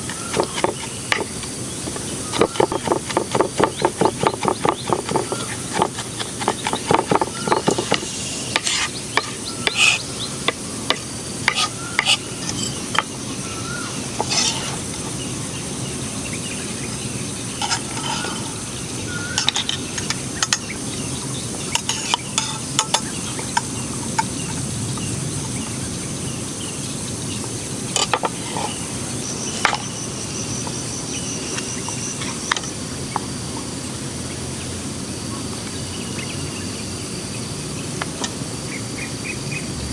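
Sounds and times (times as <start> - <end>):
utensil clicking and scraping: 0.0 - 13.2, 13.9 - 15.0, 17.6 - 18.6, 21.8 - 23.1
food sizzling on hot stone: 6.0 - 14.9.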